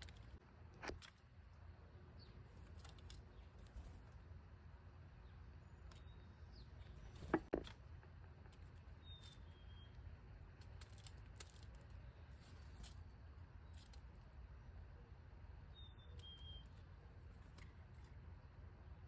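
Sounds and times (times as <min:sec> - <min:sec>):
low steady rumble: 0:00.0 - 0:19.0
bird chirps: 0:08.9 - 0:10.0, 0:15.7 - 0:17.2.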